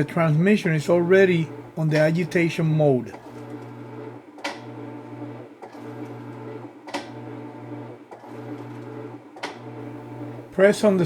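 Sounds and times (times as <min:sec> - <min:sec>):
washing machine agitating: 0:00.0 - 0:11.0
washing machine click: 0:04.4 - 0:04.7, 0:06.9 - 0:07.2.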